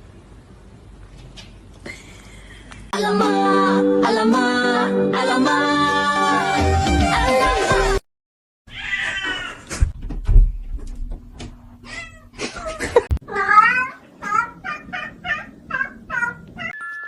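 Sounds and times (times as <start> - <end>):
cat meowing: 8.7 - 9.7, 11.8 - 16.8
dull thumps: 9.7 - 11.8.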